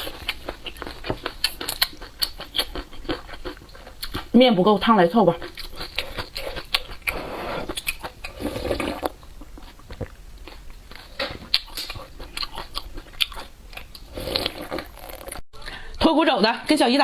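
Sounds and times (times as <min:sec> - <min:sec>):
wet chewing smacks: 0:00.0 - 0:15.4
person slurping noodle soup: 0:05.6 - 0:09.2, 0:14.0 - 0:15.4.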